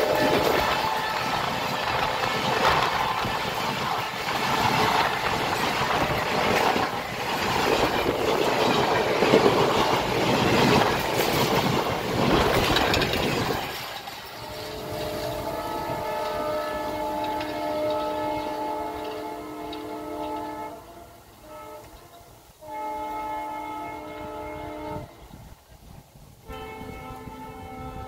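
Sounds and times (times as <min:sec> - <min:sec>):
train horn: 0:00.0 - 0:13.6, 0:14.2 - 0:25.7, 0:26.4 - 0:28.0
train wheels clattering over rails: 0:00.0 - 0:20.7.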